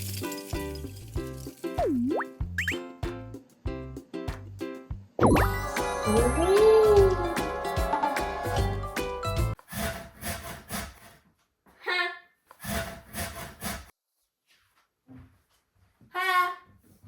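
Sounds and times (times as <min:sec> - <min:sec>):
background music: 0:00.0 - 0:09.6
rasping scraping strokes: 0:09.6 - 0:11.2, 0:12.5 - 0:13.9.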